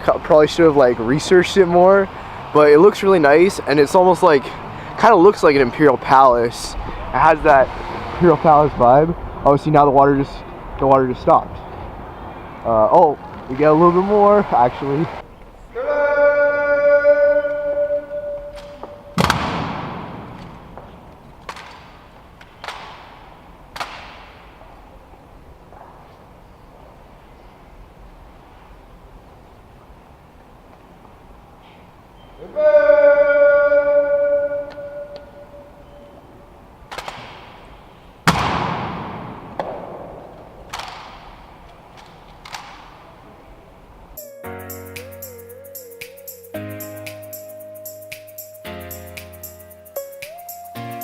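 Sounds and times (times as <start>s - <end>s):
held musical note: 44.2s - 51.0s.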